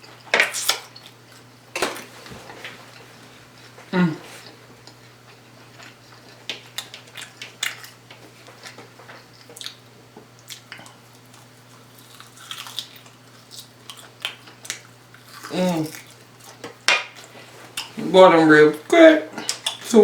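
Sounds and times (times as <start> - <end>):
faint steady hum: 0.0 - 20.0
person chewing with wet mouth sounds: 8.6 - 9.8, 10.4 - 16.6.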